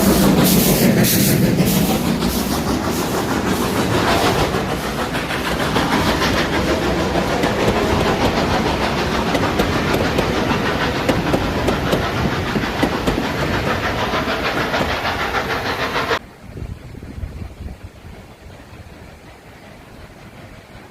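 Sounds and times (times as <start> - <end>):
train wheels clattering on rails: 0.0 - 16.2.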